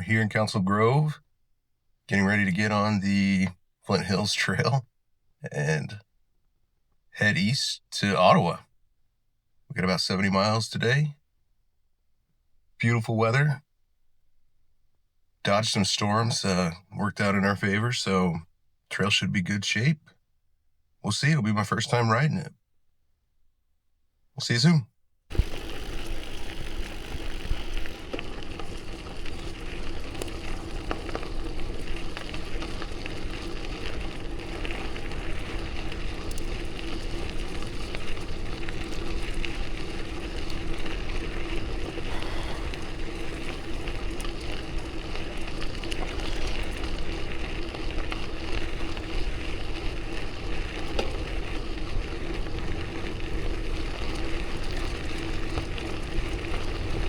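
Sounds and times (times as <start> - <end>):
bicycle tyre noise: 25.3 - 57.0
small scattered ticks: 25.3 - 57.0.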